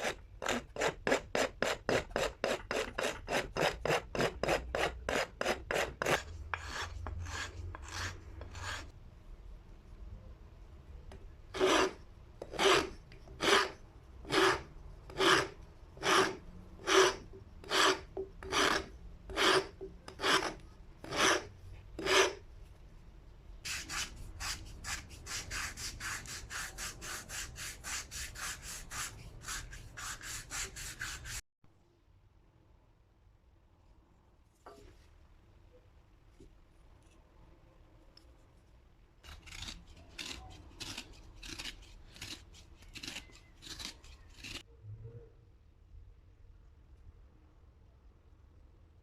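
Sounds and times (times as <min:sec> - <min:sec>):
rasping strokes: 0:00.0 - 0:09.0, 0:11.5 - 0:22.4, 0:23.7 - 0:31.4, 0:39.2 - 0:44.6.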